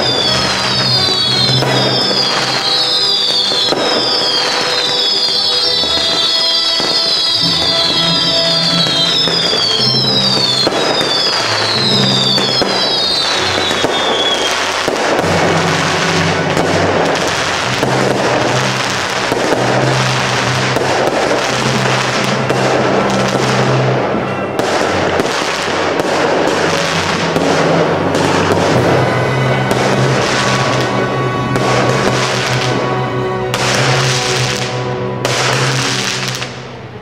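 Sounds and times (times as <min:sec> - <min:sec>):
falling firework whistles: 0:00.0 - 0:23.7
background music: 0:00.0 - 0:37.0
fireworks crackling and popping: 0:00.0 - 0:37.0.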